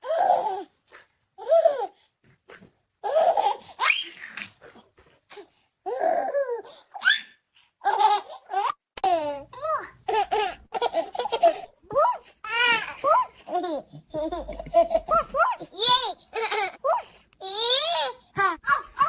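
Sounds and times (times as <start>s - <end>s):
baby giggling and babbling: 3.0s - 3.7s, 7.8s - 19.0s
baby squealing: 18.6s - 19.0s.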